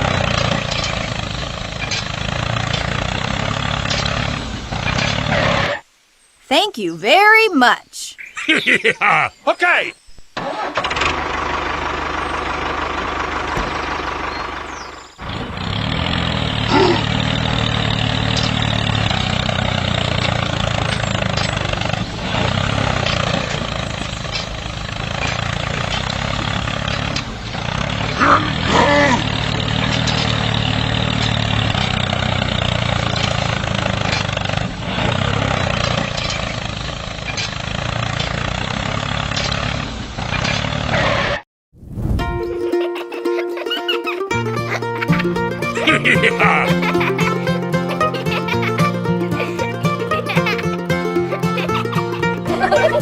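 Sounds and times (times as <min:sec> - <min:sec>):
small tractor motor running: 0:00.0 - 0:05.8, 0:10.4 - 0:41.2, 0:44.3 - 0:53.0
short high-pitched sounds: 0:06.6 - 0:08.1.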